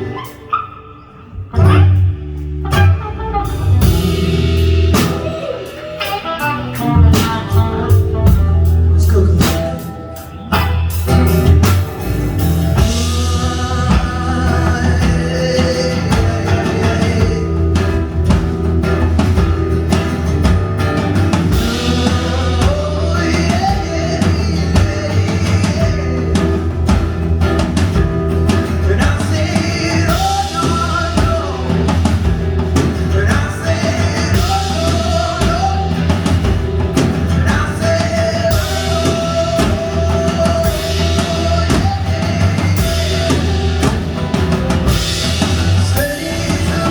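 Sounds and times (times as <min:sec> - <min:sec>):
bending melody line: 0:00.0 - 0:27.4
bass: 0:00.0 - 0:46.9
electric guitar: 0:00.0 - 0:46.9
keyboard: 0:00.0 - 0:46.9
drum kit beat: 0:01.5 - 0:46.9.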